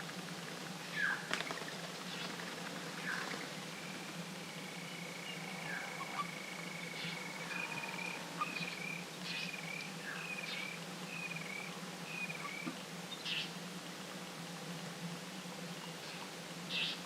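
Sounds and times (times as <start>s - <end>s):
faint low drone: 2.8s - 13.2s
animal call wavering notes: 4.7s - 9.8s.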